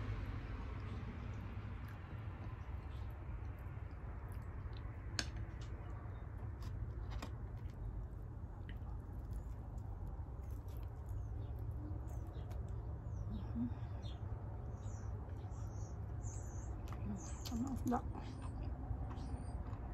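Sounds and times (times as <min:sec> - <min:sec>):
steady low hum: 0:00.0 - 0:19.9
person chewing food: 0:00.7 - 0:13.3, 0:18.3 - 0:19.9.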